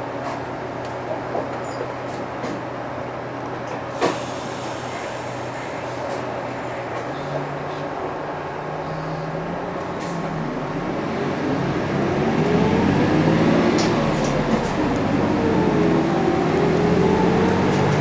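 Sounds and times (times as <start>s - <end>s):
bus diesel engine whining: 8.2s - 18.0s.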